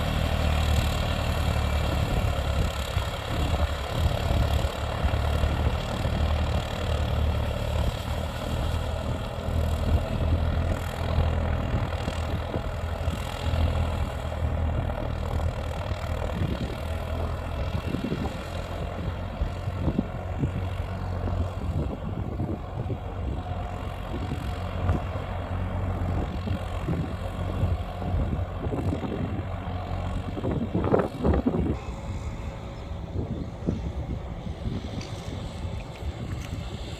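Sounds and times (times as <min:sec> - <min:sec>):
tractor engine running: 0:00.0 - 0:36.9.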